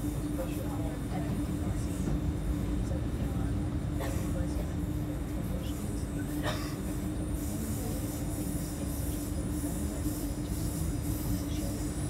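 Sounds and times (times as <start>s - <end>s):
constant low hum: 0.0s - 12.0s
train wheels rumbling on rails: 0.0s - 12.0s.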